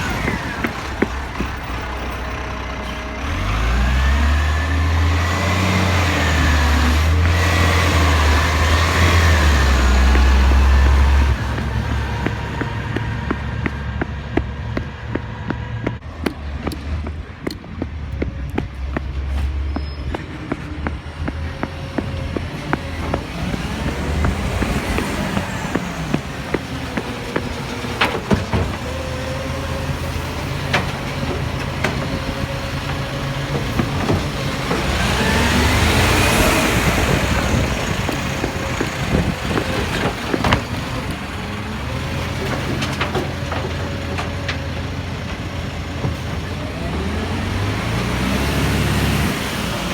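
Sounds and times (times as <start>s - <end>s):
steady engine drone: 0.0s - 49.9s
vehicle passing by: 3.2s - 17.3s, 18.0s - 41.0s.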